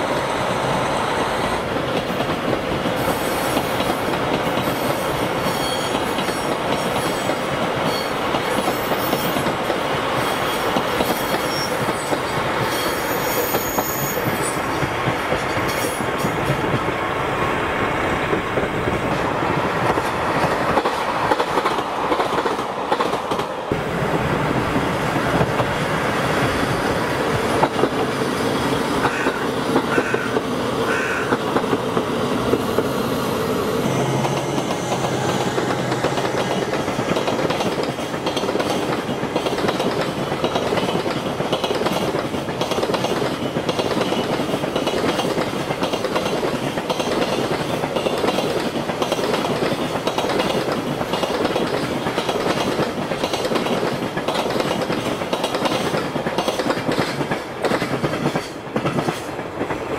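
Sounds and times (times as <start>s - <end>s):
trains passing on rails: 0.0s - 59.9s.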